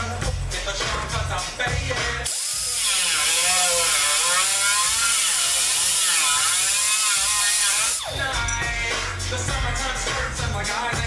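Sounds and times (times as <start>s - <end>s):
power tool cutting sheet steel: 2.2s - 8.1s.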